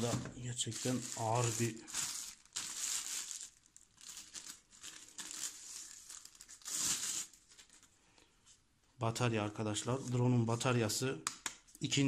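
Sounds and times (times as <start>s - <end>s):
plastic wrapping crinkling: 0.0s - 7.9s.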